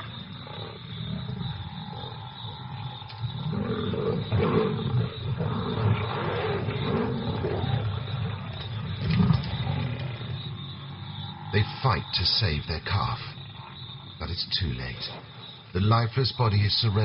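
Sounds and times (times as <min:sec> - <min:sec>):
lions growling and snarling: 0:00.0 - 0:11.8.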